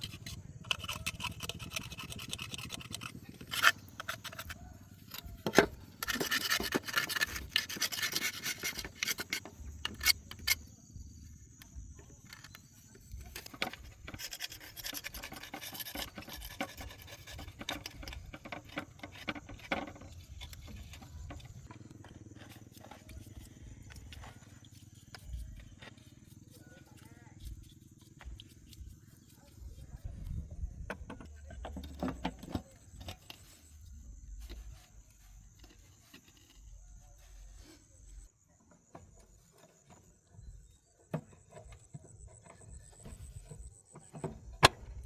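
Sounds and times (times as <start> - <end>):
tool scraping metal: 0.0 - 10.7, 12.3 - 23.5.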